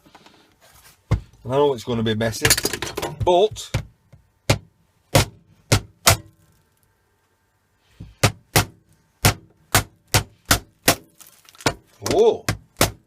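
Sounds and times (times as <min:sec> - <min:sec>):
sharp blows on plastic: 0:04.5 - 0:06.3, 0:08.0 - 0:11.8, 0:12.4 - 0:13.0.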